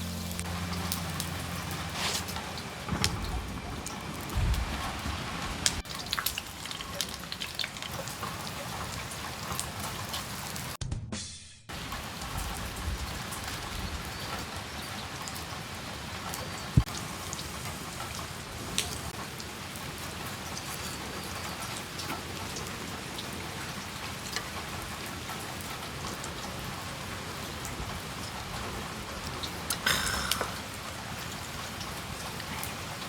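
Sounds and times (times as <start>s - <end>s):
steady rain falling: 0.0s - 10.8s, 11.7s - 33.0s.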